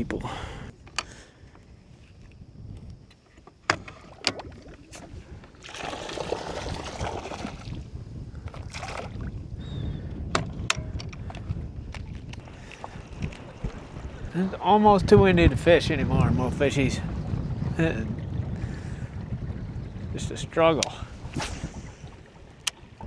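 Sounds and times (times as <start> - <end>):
low wind rumble: 0.0 - 23.0
water splashing around a canoe: 0.0 - 23.0
knocks on boat: 10.2 - 12.1.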